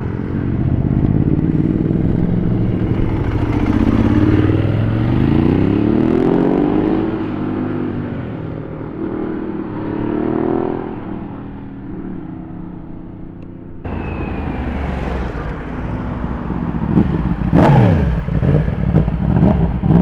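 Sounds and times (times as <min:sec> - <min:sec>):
motorcycle engine accelerating: 0:00.0 - 0:13.2, 0:13.9 - 0:20.0.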